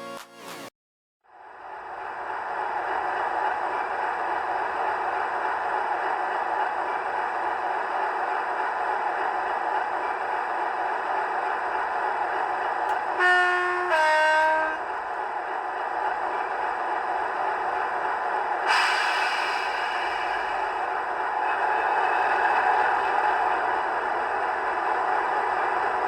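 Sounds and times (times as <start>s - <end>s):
two-tone train horn: 12.9s - 15.2s
sudden hiss: 18.7s - 20.8s.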